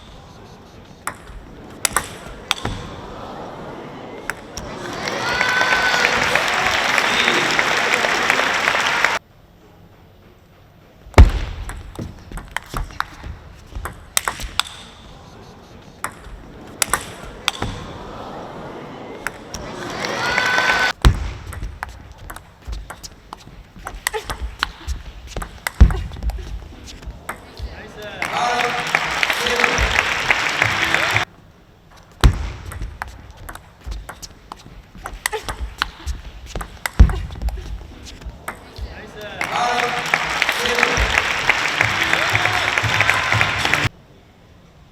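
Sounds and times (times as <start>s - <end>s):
table tennis ball clicking: 1.0s - 2.8s, 11.7s - 15.1s, 16.0s - 17.8s, 21.5s - 26.6s, 32.7s - 38.9s
crowd cheering and clapping: 3.0s - 9.2s, 17.7s - 21.0s, 27.6s - 31.3s, 38.1s - 43.9s
loud thud: 21.0s - 21.6s, 32.2s - 32.9s.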